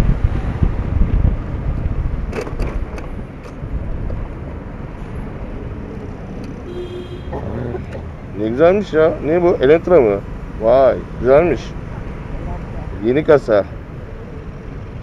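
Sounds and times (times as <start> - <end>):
wind rushing over microphone: 0.0 - 6.8
motorcycle road and engine noise: 0.0 - 15.0.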